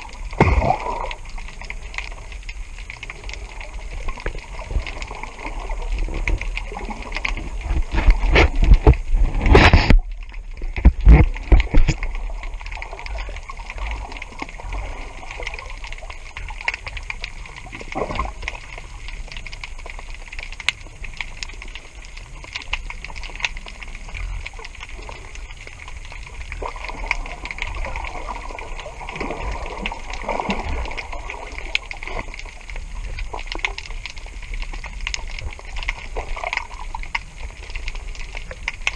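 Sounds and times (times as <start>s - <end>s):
small crackles: 0.0s - 38.9s
water splashing and gurgling: 0.0s - 38.9s.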